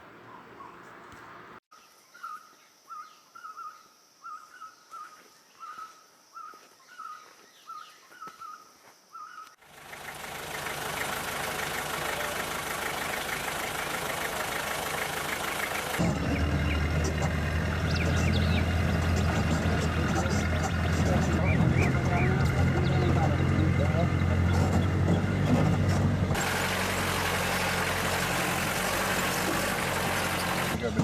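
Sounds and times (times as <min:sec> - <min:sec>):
bird chirping call: 0:00.2 - 0:01.1, 0:15.4 - 0:25.3.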